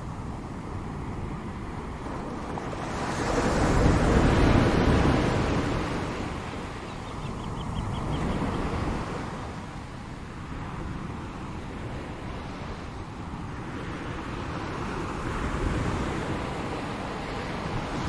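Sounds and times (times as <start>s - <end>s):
ocean waves breaking: 0.0s - 18.0s.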